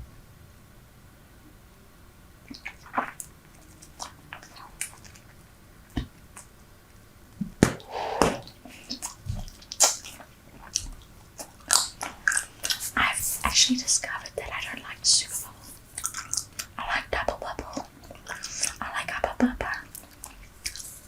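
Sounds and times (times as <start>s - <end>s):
bubble gum chewing smacks: 2.5s - 5.4s, 15.9s - 18.8s.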